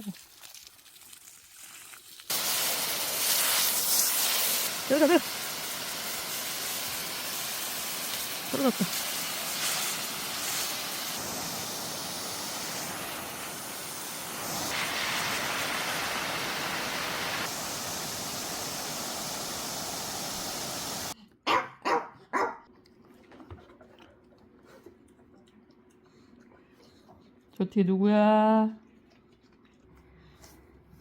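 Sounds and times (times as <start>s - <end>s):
dog barking: 21.4s - 22.7s.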